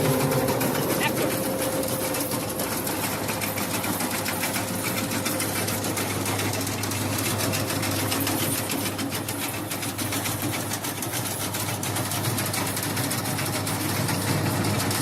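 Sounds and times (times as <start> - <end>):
low engine hum: 0.0 - 10.6
mechanical clatter: 0.0 - 15.0.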